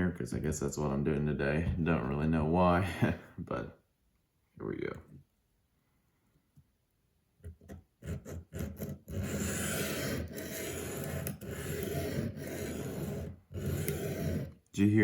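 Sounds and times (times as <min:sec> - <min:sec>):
knife scraping on sharpening stone: 0:08.1 - 0:14.5.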